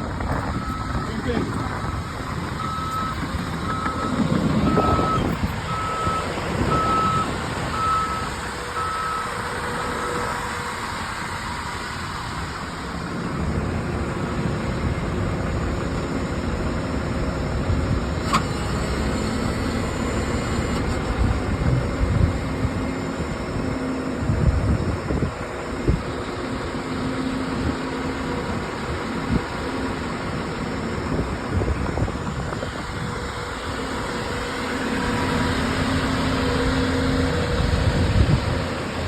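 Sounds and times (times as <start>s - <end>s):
diesel engines under load: 0.0s - 39.0s
backup alarm beeping: 2.6s - 9.4s.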